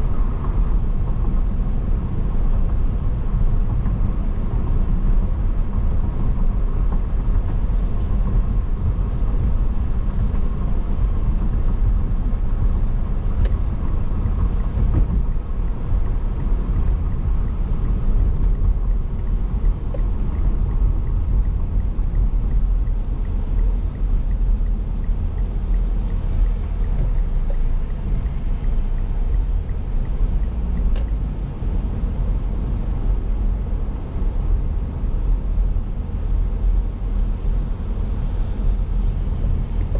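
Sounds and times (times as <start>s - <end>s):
car road rumble: 0.0s - 39.9s
faint ticks: 19.2s - 31.2s.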